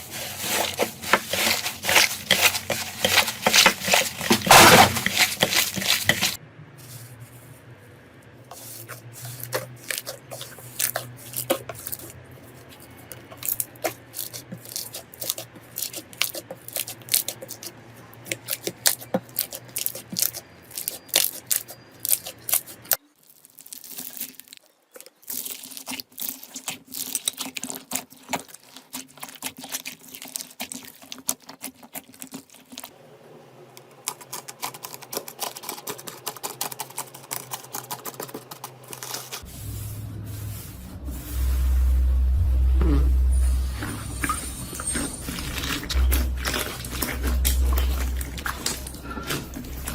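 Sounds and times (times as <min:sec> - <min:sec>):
faint hum: 0:39.5 - 0:49.9.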